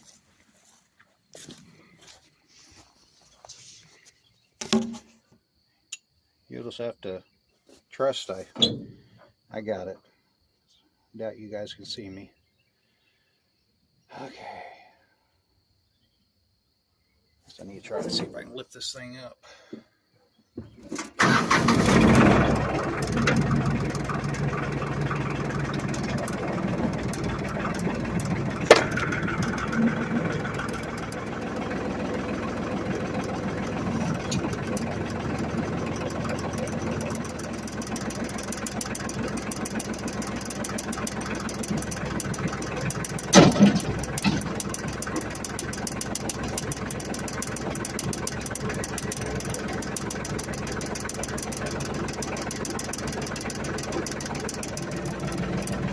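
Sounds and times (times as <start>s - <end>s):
diesel tractor engine idling: 21.2s - 55.9s
sharp clank: 43.3s - 44.5s.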